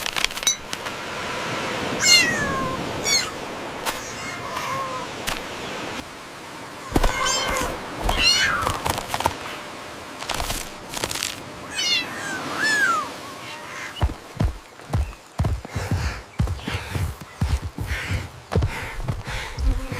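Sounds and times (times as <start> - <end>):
cat meowing: 2.0 - 3.4, 4.0 - 5.1, 6.9 - 8.8, 11.7 - 14.0.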